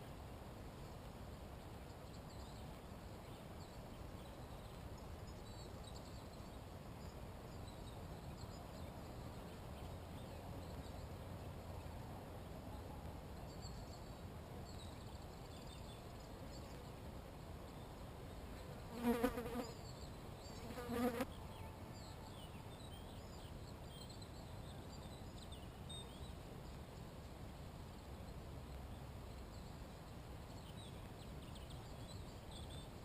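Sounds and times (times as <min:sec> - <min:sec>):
flying insect buzzing: 0:18.9 - 0:19.7, 0:20.6 - 0:21.3.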